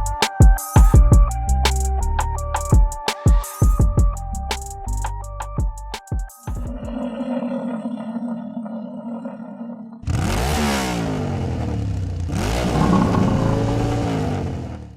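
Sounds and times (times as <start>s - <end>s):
tiller engine running: 10.0s - 14.9s.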